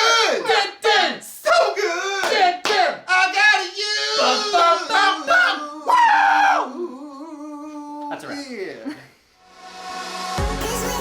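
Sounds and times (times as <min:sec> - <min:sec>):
people singing unaccompanied: 0:04.0 - 0:05.9.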